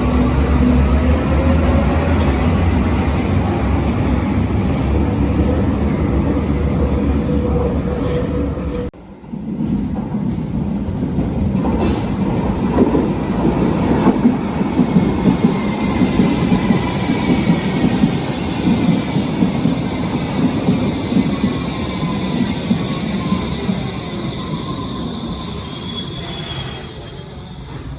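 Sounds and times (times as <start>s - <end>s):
train rumbling on track: 0.0s - 27.9s
faint high wheel squeal: 21.8s - 27.9s.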